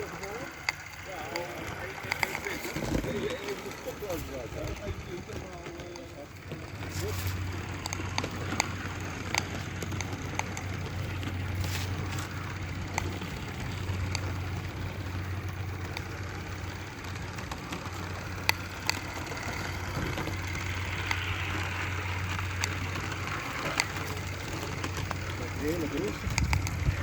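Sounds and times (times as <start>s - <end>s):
model steam locomotive hum and hiss: 0.0s - 27.0s
sharp clicks: 0.1s - 27.0s.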